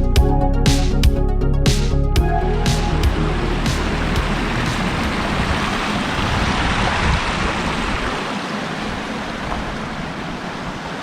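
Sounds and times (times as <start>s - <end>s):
low rumble: 0.1s - 7.4s
creek water rushing: 2.7s - 11.0s.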